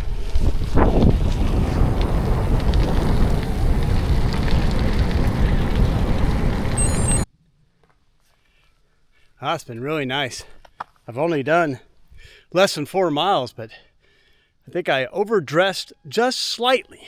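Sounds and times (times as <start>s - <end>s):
wind buffeting microphone: 0.0s - 7.2s
bike tyres rolling on gravel: 0.0s - 7.3s.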